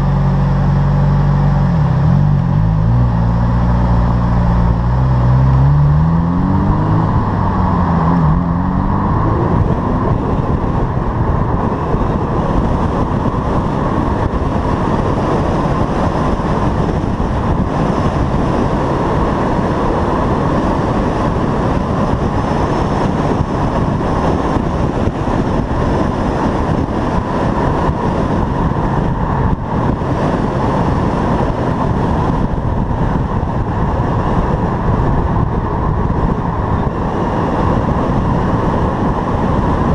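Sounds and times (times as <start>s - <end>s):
car engine revving: 0.0s - 24.6s
road noise: 0.0s - 39.9s.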